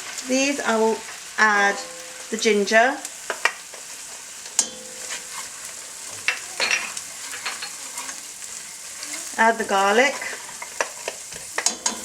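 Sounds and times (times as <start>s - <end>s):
onions sizzling in a frying pan: 0.0s - 12.0s
spoon scraping a pan: 3.2s - 12.0s.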